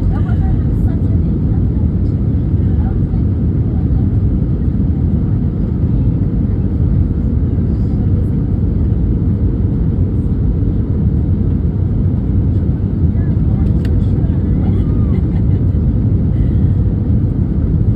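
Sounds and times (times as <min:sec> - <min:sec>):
engine and airflow rumble: 0:00.0 - 0:17.9.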